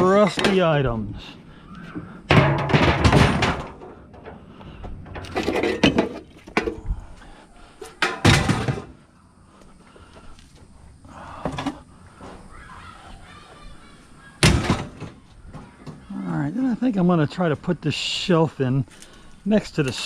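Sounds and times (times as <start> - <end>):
scrap metal clanking on pile: 2.3 - 3.8, 5.2 - 6.7.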